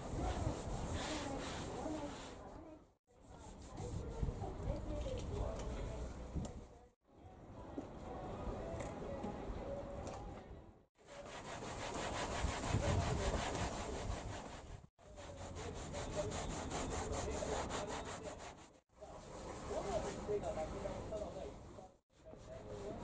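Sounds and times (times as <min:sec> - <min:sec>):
fast scrubbing on car interior: 0:11.1 - 0:18.8.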